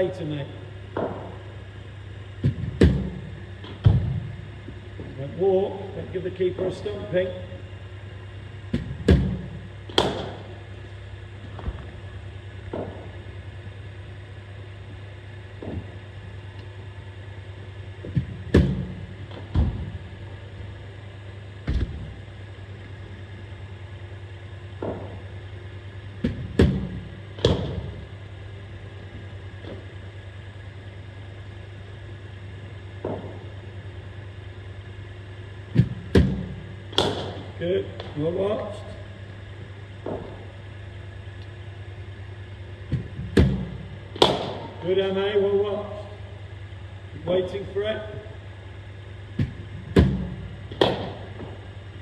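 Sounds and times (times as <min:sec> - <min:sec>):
bowling machine humming: 0:00.0 - 0:52.0
sharp knocks of balls: 0:00.9 - 0:01.6, 0:02.4 - 0:04.4, 0:08.7 - 0:10.6, 0:12.6 - 0:13.2, 0:18.0 - 0:20.0, 0:24.8 - 0:25.5, 0:26.2 - 0:28.1, 0:33.0 - 0:33.6, 0:35.7 - 0:38.2, 0:42.9 - 0:44.9, 0:49.3 - 0:51.7.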